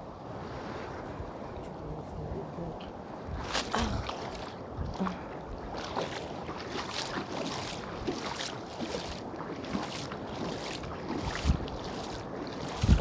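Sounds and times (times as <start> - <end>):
water splashing: 3.3 - 13.0.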